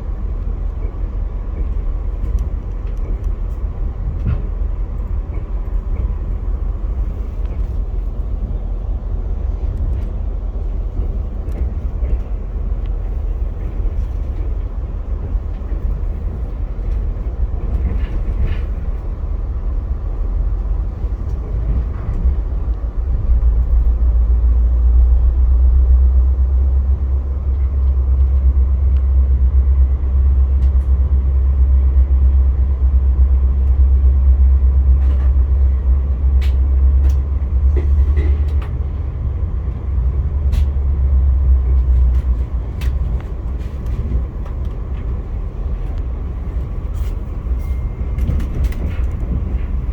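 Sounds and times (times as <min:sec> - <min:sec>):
train rumbling on track: 0:00.0 - 0:49.9.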